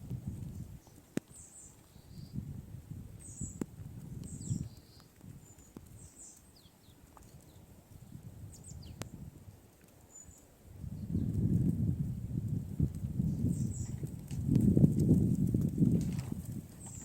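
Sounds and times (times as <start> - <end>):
small birds chirping: 0.4 - 2.5, 3.2 - 9.2, 9.9 - 11.6, 13.1 - 15.6, 16.3 - 17.0.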